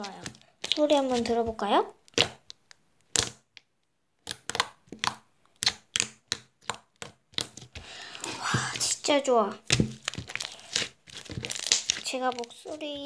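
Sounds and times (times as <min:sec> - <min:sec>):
slime squeezed by hand popping: 0:09.6 - 0:12.4.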